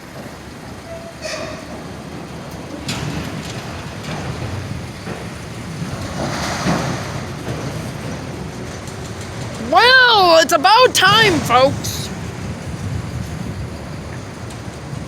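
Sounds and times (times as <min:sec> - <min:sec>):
freight train rumbling past: 0:00.0 - 0:09.6.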